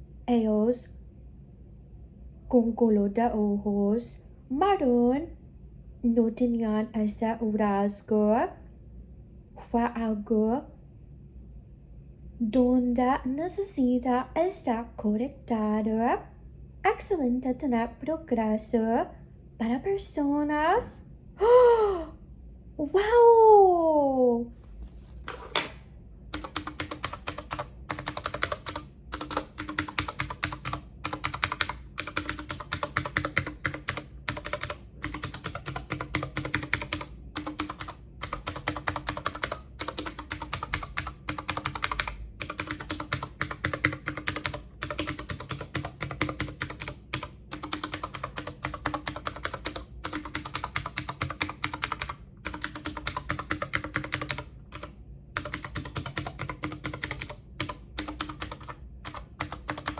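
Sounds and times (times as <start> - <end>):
fast typing on keyboard: 26.3 - 59.9.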